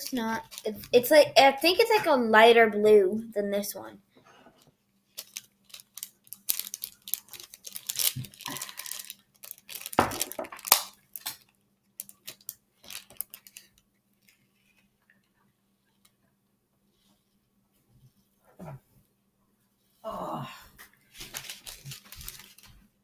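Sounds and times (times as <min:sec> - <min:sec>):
plastic package crinkling and tearing: 0:00.0 - 0:01.1, 0:05.1 - 0:14.8, 0:21.2 - 0:22.8
beads rattling into container: 0:05.2 - 0:11.4, 0:12.0 - 0:13.7.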